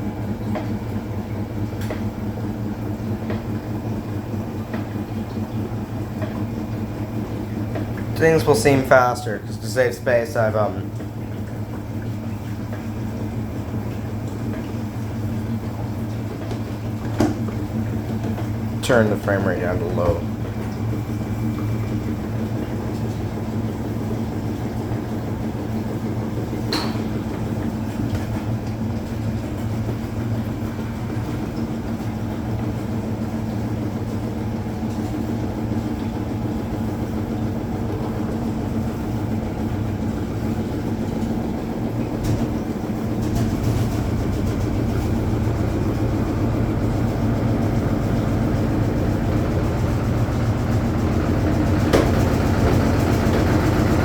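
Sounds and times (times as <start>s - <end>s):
washing machine humming: 0.0s - 54.0s
washing machine click: 9.8s - 54.0s.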